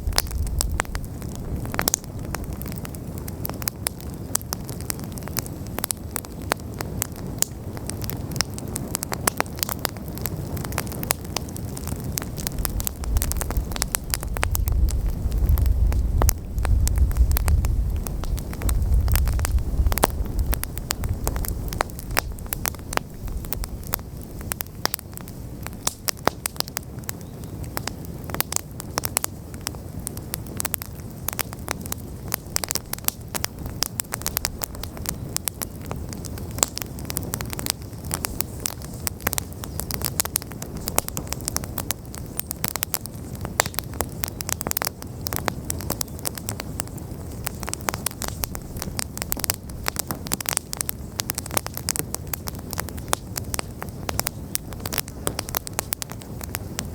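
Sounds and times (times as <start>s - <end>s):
wood fire crackling and popping: 0.0s - 56.9s
flame rushing: 6.8s - 27.1s.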